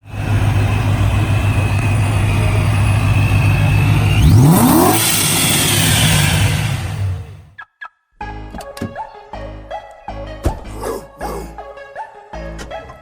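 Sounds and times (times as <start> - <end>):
car engine idling and revving: 0.0 - 7.5
thin engine whine: 0.0 - 7.5.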